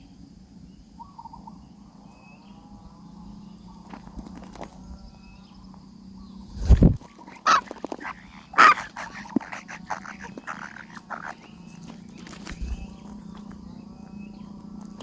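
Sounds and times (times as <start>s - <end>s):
short animal calls: 7.0s - 12.8s.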